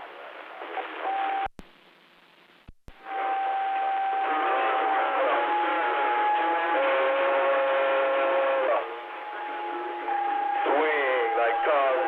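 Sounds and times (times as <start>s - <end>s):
radio static: 2.6s - 12.0s
steady whistle tone: 3.0s - 7.0s, 9.1s - 12.0s
garbled radio chatter: 10.6s - 12.0s.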